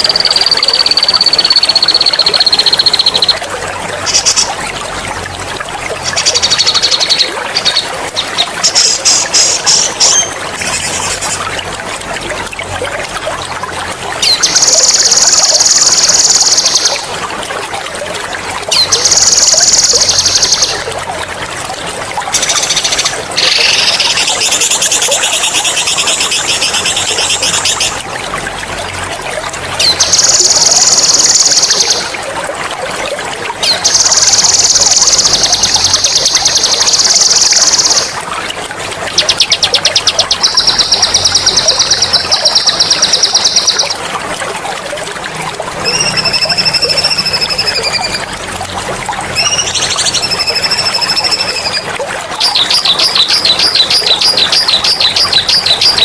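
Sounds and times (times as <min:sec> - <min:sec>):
songbird singing rolling trills: 0:00.0 - 0:03.4
trickling water: 0:00.0 - 0:56.0.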